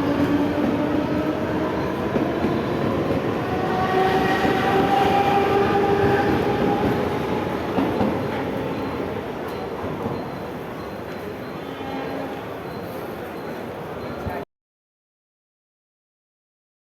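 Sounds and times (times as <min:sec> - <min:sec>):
electric train rumbling and whining: 0:00.0 - 0:10.2.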